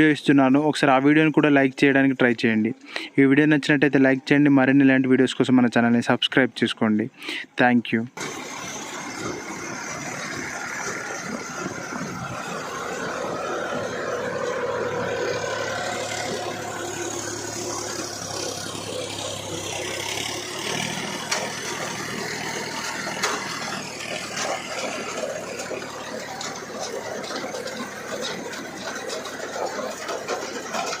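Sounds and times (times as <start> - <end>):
tractor diesel engine running: 7.1 - 31.0.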